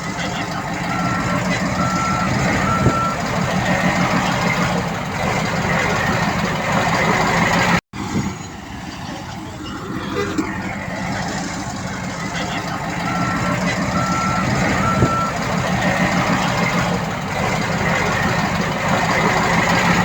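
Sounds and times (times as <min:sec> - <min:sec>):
heavy machinery diesel engine: 0:00.0 - 0:20.0
reversing alarm beep: 0:00.8 - 0:03.3, 0:12.9 - 0:16.8.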